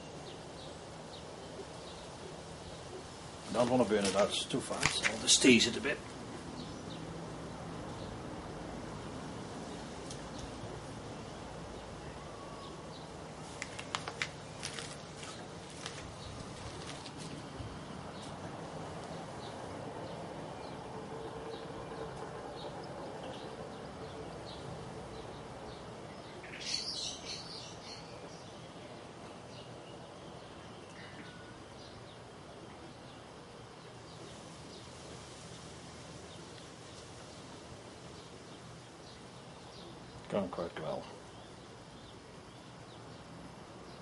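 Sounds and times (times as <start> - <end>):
faint background noise: 0.0 - 44.0
bird chirp: 19.1 - 34.9.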